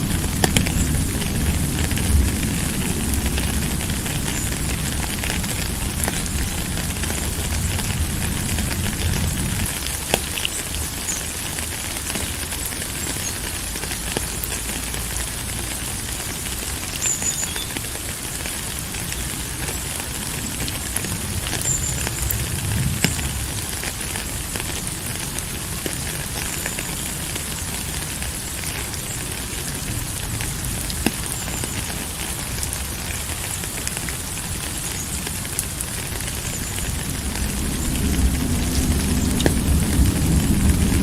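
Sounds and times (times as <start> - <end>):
rain drop clicks: 0.0 - 41.0
steady rain hiss: 0.0 - 41.0.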